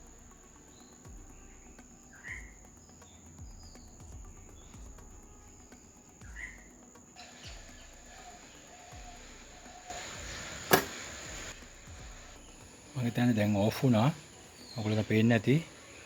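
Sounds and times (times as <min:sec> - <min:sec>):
high insect-like drone: 0:00.0 - 0:16.0
soft low thuds: 0:01.1 - 0:06.8.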